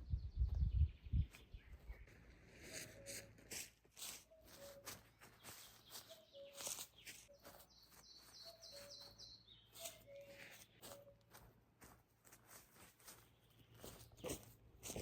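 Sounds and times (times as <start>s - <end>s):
high bird chirps: 4.3s - 11.3s.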